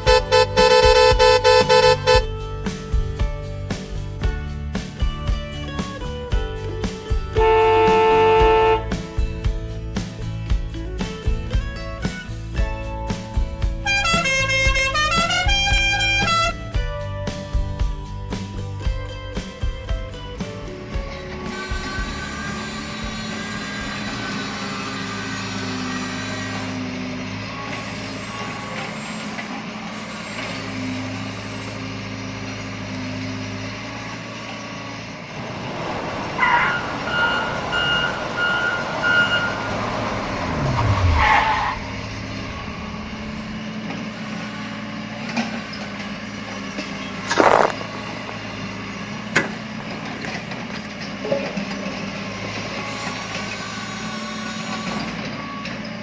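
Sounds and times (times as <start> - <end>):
heavy vehicle engine running: 0.0 - 56.0
reversing beeps: 37.0 - 39.9
air brake hiss: 43.3 - 46.8.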